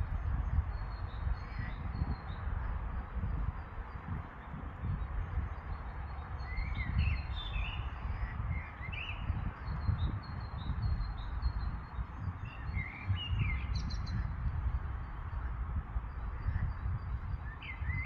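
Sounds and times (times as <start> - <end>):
steady low rumbling noise: 0.0 - 18.0
birds chirping: 0.1 - 18.0.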